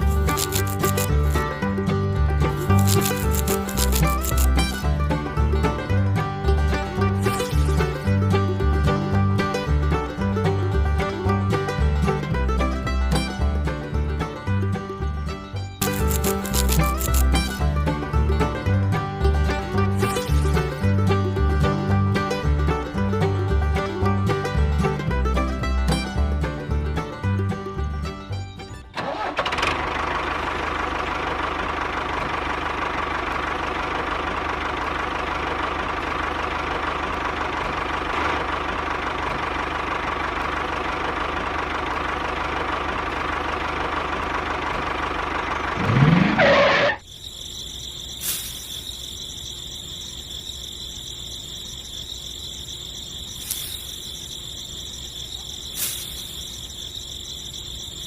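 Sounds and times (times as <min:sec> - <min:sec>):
motor buzzing hum: 0:00.0 - 0:01.6, 0:02.5 - 0:04.9, 0:15.8 - 0:17.6
faint high whine: 0:45.8 - 0:58.0.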